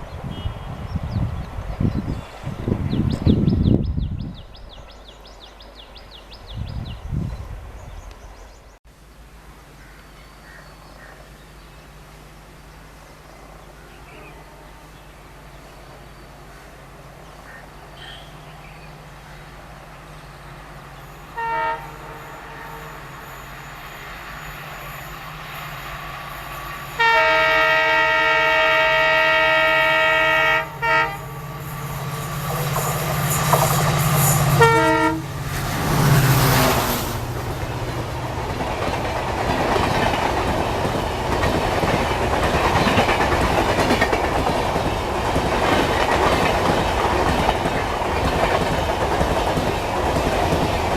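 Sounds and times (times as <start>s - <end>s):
train horn blasts: 0.3s - 1.0s, 18.0s - 18.5s, 21.3s - 23.5s, 26.9s - 35.5s
train rumble: 11.0s - 50.9s
train wheels clattering: 31.5s - 50.9s.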